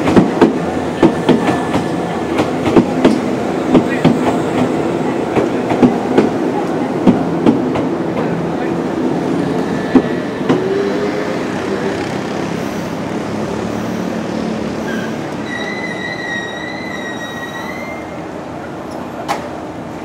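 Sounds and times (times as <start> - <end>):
train brakes squealing: 14.8 - 18.3.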